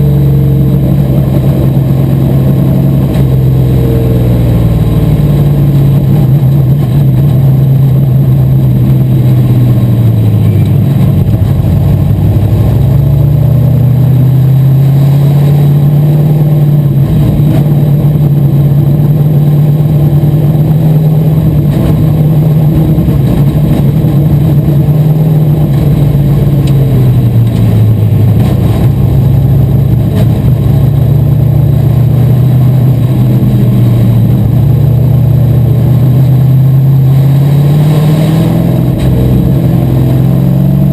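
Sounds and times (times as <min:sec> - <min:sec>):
race car engine running hard: 0:00.0 - 0:40.9.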